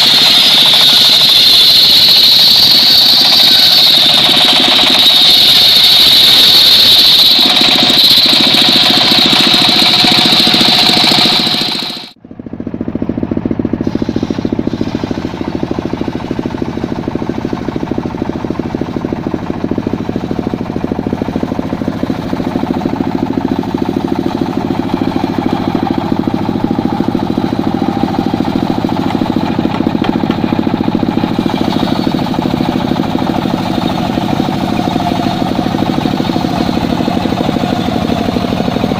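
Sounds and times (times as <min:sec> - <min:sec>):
circular saw high whine: 0:00.0 - 0:38.9
engine-driven saw running: 0:00.0 - 0:38.9.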